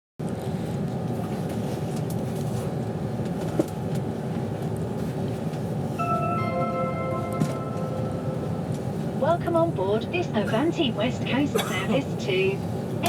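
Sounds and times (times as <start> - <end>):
train rumbling: 0.2 - 13.0
public-address chime: 6.0 - 8.7.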